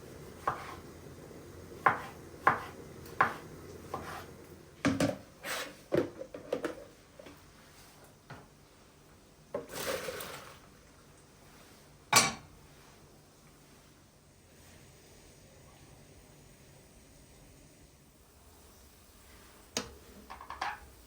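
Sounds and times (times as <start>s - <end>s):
dishes and utensils clinking: 12.1s - 12.5s, 20.3s - 20.8s.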